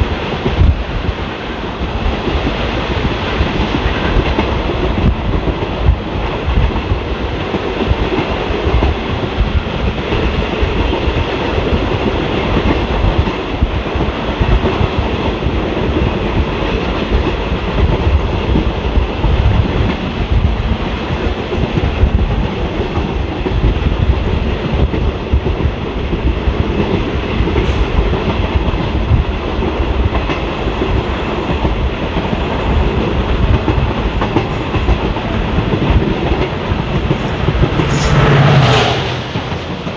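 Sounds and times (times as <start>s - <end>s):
train coach rumbling: 0.0s - 39.9s.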